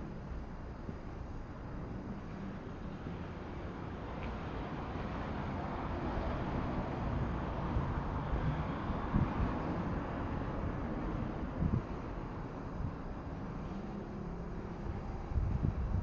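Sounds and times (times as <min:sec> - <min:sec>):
wind buffeting microphone: 0:06.2 - 0:13.3, 0:14.8 - 0:16.0.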